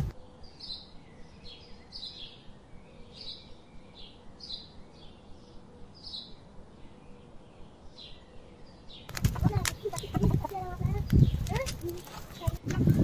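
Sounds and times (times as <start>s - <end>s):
open-air background noise: 0.0s - 13.0s
bird calling: 9.0s - 12.6s.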